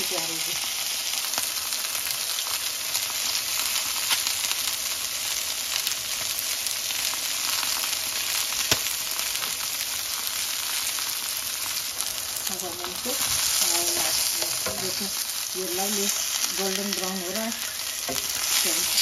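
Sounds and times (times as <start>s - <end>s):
chicken sizzling in a frying pan: 0.0s - 19.0s
oil pop: 8.6s - 9.6s.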